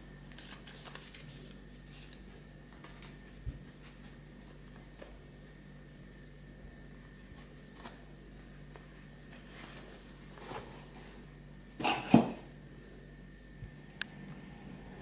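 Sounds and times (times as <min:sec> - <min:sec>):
soft rustle: 0:08.7 - 0:11.2.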